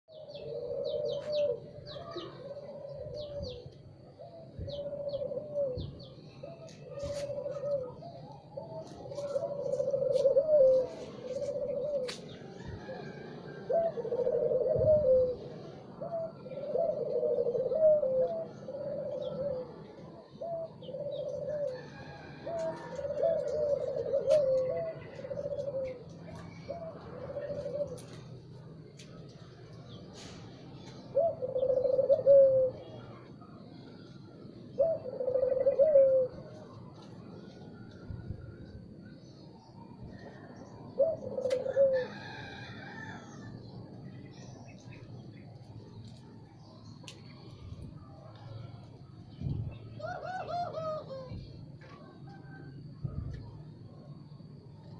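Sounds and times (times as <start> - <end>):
small birds chirping: 0.1 - 13.2, 43.2 - 50.2
dove cooing: 0.1 - 54.9.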